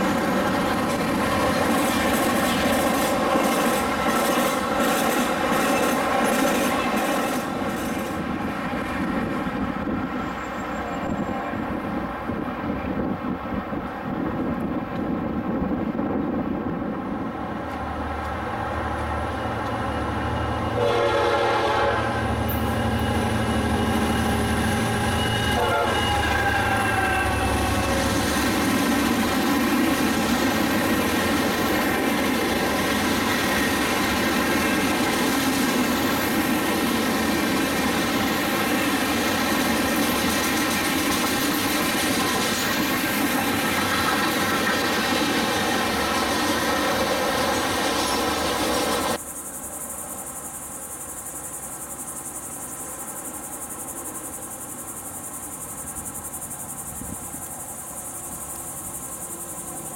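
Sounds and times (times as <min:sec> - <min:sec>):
freight train wheels clattering: 0:00.0 - 0:11.4, 0:22.2 - 0:49.2
insect drone: 0:17.3 - 0:59.9.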